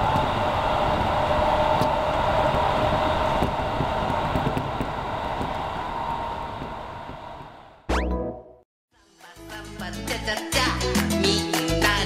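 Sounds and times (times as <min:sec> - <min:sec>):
train interior rumble: 0:00.0 - 0:07.8
train motor whine: 0:00.0 - 0:07.9.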